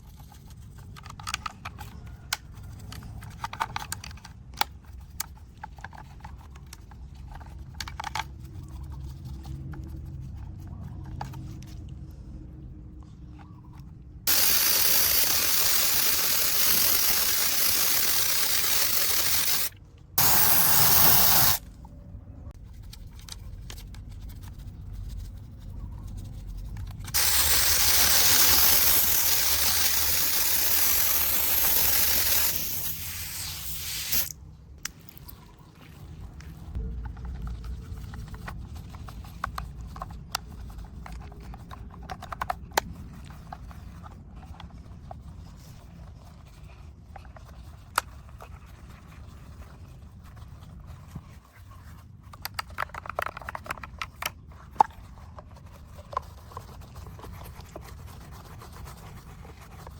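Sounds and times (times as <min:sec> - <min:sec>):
small clicks and handling noises: 0:00.0 - 0:12.2, 0:22.8 - 0:24.5, 0:34.2 - 0:45.3, 0:47.0 - 0:48.9, 0:50.4 - 0:57.9
spray nozzle hissing: 0:14.3 - 0:21.6, 0:27.2 - 0:34.3.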